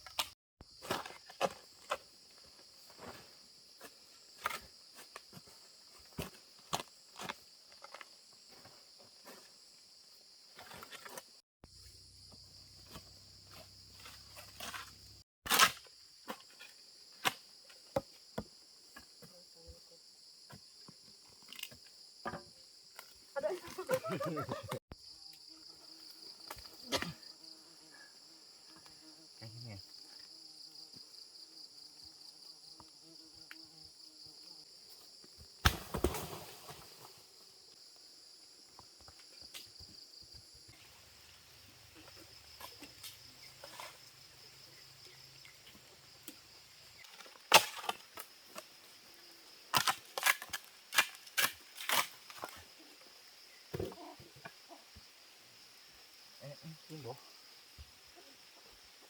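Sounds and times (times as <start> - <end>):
high insect buzz: 24.9 - 38.8.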